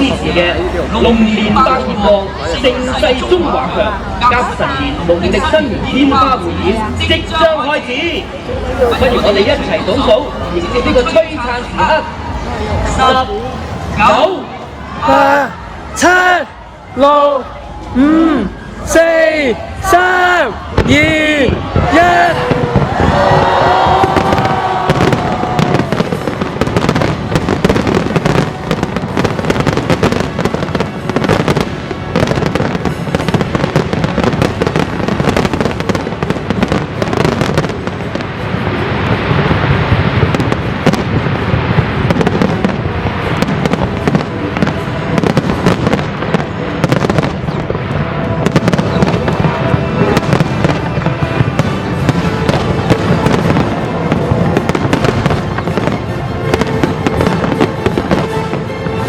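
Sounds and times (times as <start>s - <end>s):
fireworks cracking and booming: 0.0s - 59.0s
orchestral background music: 50.5s - 59.0s.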